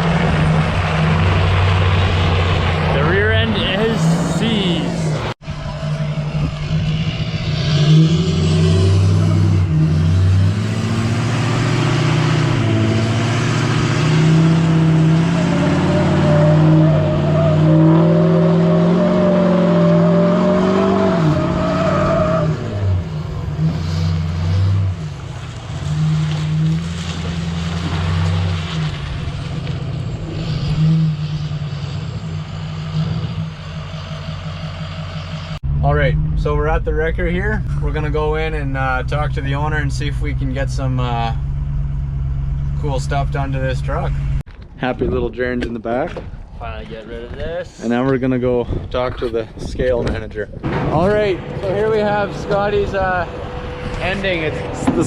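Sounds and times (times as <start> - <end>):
wavering tyre squeal: 0.0 - 24.8, 30.0 - 35.6
vehicle engine running: 25.1 - 44.5, 50.7 - 55.0.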